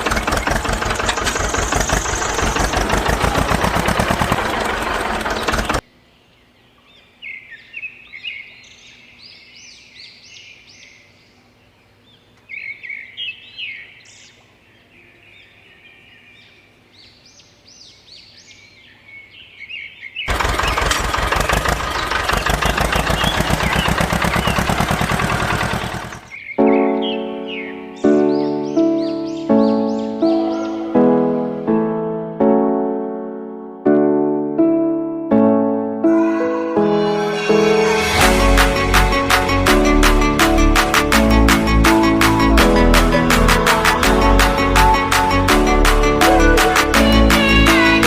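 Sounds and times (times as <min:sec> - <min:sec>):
small engine knocking: 0:00.0 - 0:05.8, 0:20.3 - 0:26.3
birds chirping: 0:00.0 - 0:31.6.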